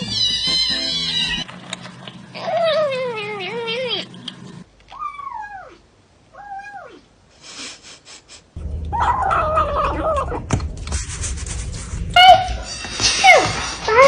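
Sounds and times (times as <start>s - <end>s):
cats meowing and yowling: 0.0s - 1.4s, 4.9s - 7.1s, 8.9s - 10.4s.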